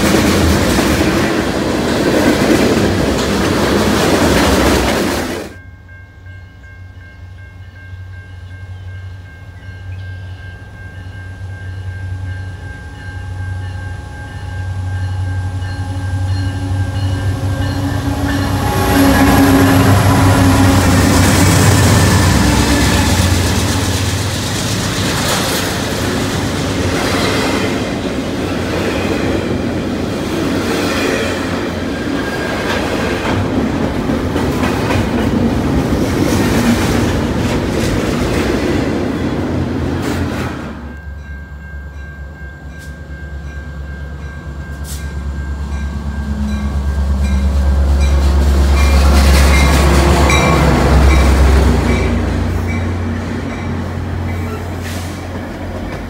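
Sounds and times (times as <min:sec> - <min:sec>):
freight train wheel clatter: 0:00.0 - 0:05.6, 0:16.5 - 0:41.0, 0:46.3 - 0:56.0
diesel locomotive engine rumble: 0:00.0 - 0:56.0.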